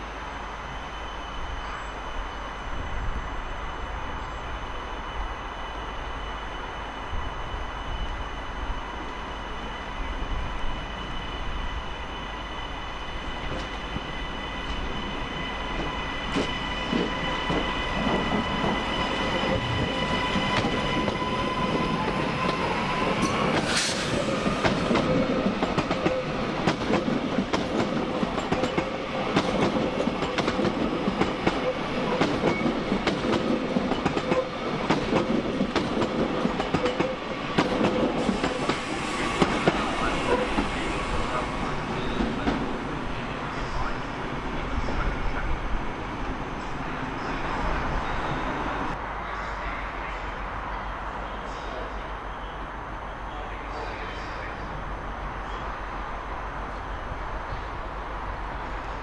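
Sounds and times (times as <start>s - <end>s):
train whine: 0.0s - 59.0s
sharp rising squeal: 3.5s - 25.5s.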